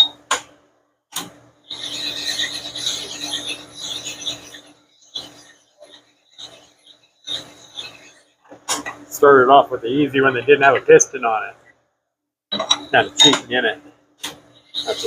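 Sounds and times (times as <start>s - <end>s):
metal rasping against honing stone: 1.7s - 8.3s, 12.5s - 13.6s, 14.5s - 15.0s.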